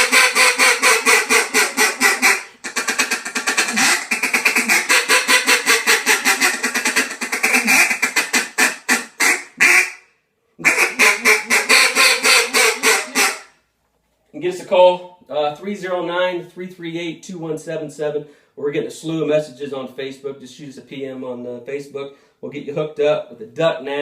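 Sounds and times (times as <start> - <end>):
duck call quacks: 0.0 - 13.6.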